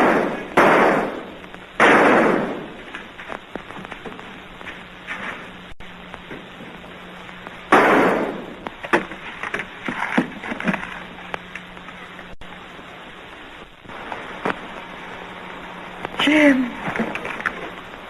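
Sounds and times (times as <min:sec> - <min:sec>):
loud bang: 0:00.0 - 0:02.8, 0:07.7 - 0:08.6
film track hiss and hum: 0:00.0 - 0:18.0.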